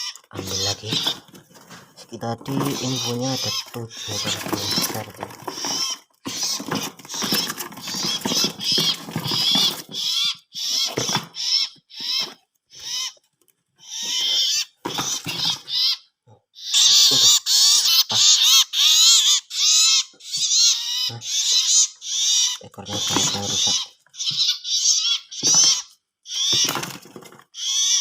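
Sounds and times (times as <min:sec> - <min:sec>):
bird giving harsh high calls: 0:00.0 - 0:01.4, 0:02.2 - 0:13.2, 0:13.8 - 0:28.0
rustling: 0:00.0 - 0:15.8.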